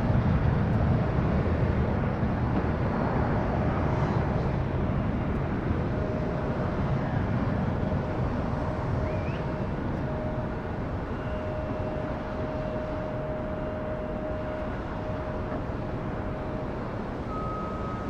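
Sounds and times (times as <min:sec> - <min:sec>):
jet engine rumble: 0:00.0 - 0:18.0
thin steady whine: 0:05.9 - 0:18.0.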